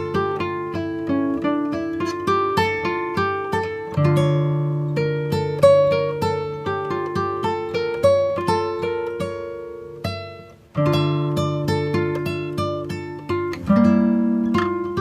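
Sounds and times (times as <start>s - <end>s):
acoustic guitar picking: 0.0s - 15.0s.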